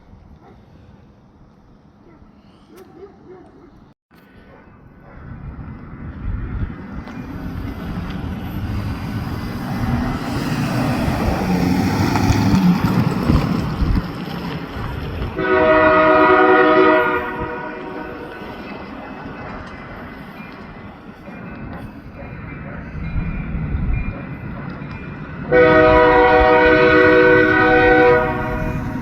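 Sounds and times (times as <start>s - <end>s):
passenger train rumbling past: 4.2s - 29.0s
locomotive horn blast: 15.4s - 18.6s, 25.5s - 29.0s.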